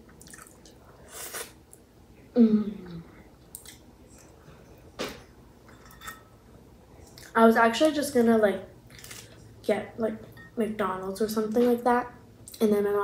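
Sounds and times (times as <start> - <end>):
person chewing food: 0.2 - 1.8.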